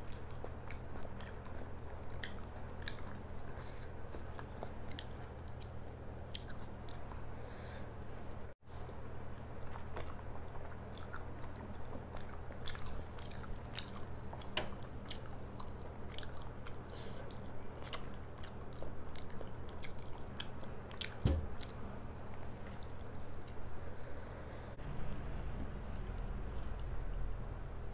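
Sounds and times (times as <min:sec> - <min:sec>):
chewing and mouth sounds: 0:00.0 - 0:07.5, 0:09.2 - 0:25.1
steady low hum: 0:00.0 - 0:27.9
dull thump: 0:21.2 - 0:21.5.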